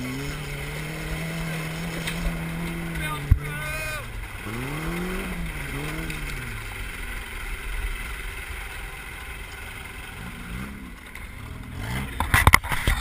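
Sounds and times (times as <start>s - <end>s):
vehicle engine revving: 0.0s - 13.0s
steady rushing noise: 0.2s - 13.0s.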